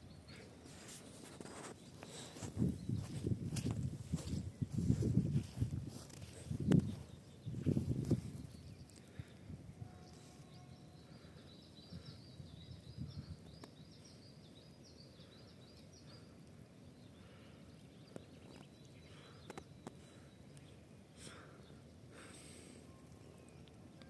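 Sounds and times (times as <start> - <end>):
small bird chirping: 0.0 - 9.3.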